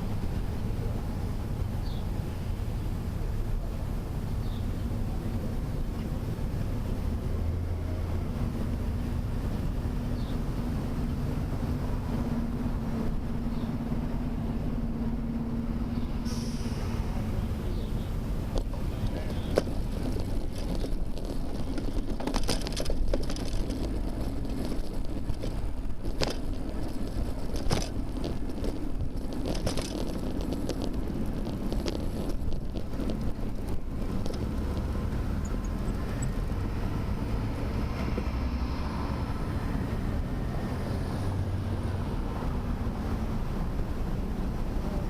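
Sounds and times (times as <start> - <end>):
wind rumbling on microphone: 0.0 - 45.0
bike clicks and rattles: 18.5 - 36.6.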